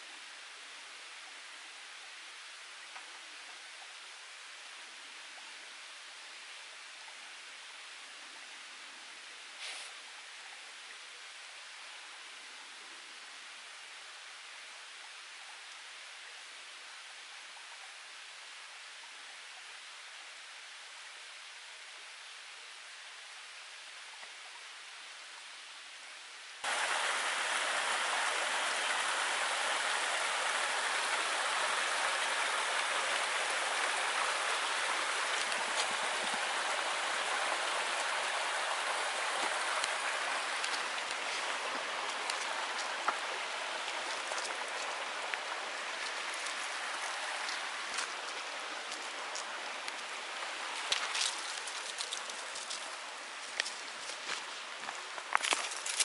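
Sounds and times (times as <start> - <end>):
stream rushing over rocks: 26.6 - 56.0.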